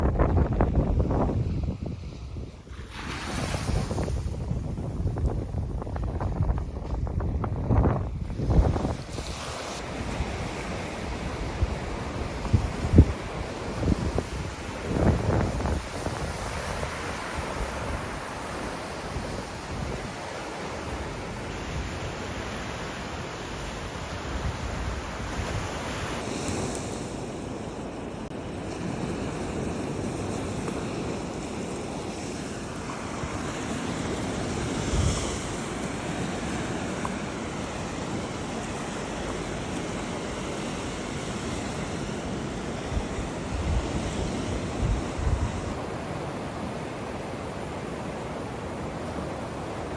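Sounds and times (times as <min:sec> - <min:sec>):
waves breaking on beach: 0:00.0 - 0:49.9
wind buffeting microphone: 0:00.0 - 0:49.9.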